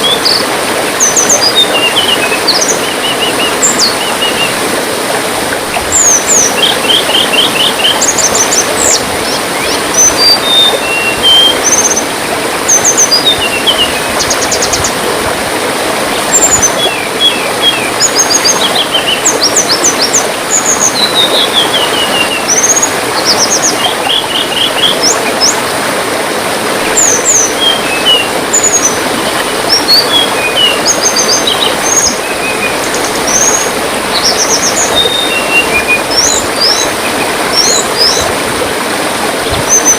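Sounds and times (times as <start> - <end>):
birds chirping and trilling: 0.0 - 4.6, 5.9 - 12.1, 12.7 - 15.0, 16.1 - 25.6, 26.8 - 38.3
gently running water: 0.0 - 39.9.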